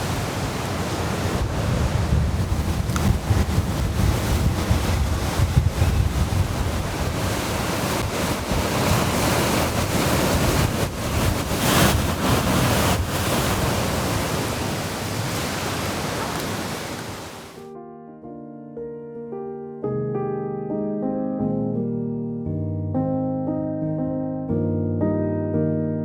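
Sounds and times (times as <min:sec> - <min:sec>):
surf breaking on a beach: 0:00.0 - 0:17.6
wind rumbling on microphone: 0:00.0 - 0:17.6.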